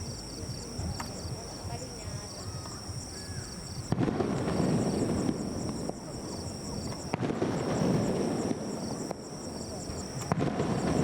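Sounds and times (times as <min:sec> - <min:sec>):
firework crackling: 0:00.0 - 0:11.0
insects trilling: 0:00.0 - 0:11.0
firework bursting with a bang: 0:03.8 - 0:11.0.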